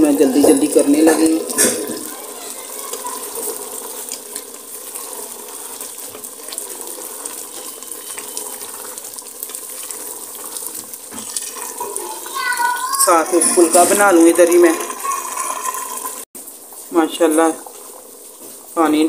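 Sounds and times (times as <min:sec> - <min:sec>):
food sizzling in pot: 0:00.0 - 0:19.0.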